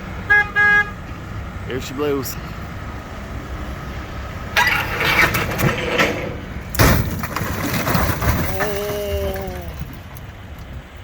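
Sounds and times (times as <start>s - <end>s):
scrap car crashing down: 4.6s - 8.8s
rattling debris: 4.6s - 10.3s.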